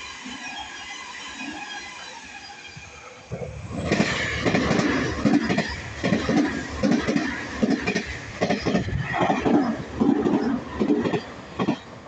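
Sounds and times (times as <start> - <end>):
train running rush: 0.0 - 12.0
train wheels clattering: 3.8 - 11.9.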